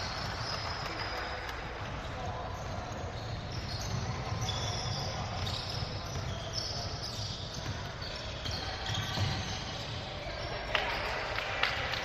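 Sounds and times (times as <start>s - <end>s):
gym crowd noise: 0.0s - 12.0s
sneakers squeaking: 0.0s - 12.0s
basketball bouncing: 2.9s - 10.0s.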